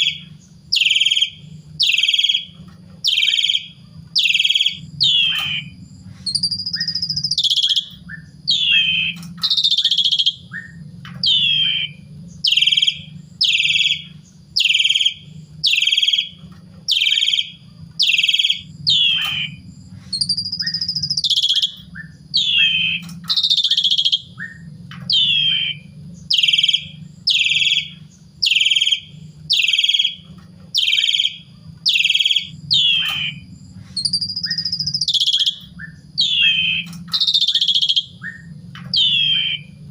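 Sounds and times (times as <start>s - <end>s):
low steady hum: 0.0s - 39.9s
starling calling: 0.0s - 39.9s.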